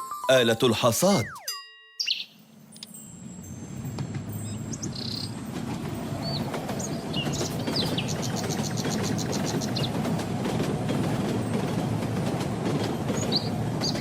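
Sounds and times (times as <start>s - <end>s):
birds chirping: 0.8s - 10.1s, 12.8s - 14.0s
bird fast trill: 1.1s - 2.4s.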